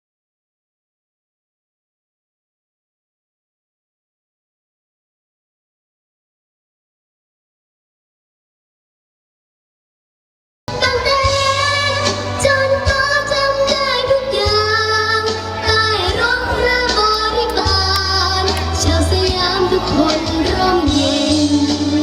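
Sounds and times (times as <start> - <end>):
backing music with heavy bass: 10.7 - 22.0
woman singing gliding melody: 10.8 - 22.0.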